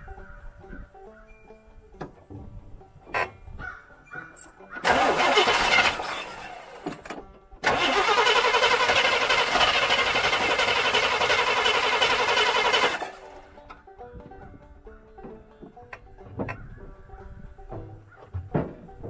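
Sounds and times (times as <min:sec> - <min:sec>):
car engine starting: 0:04.8 - 0:13.7.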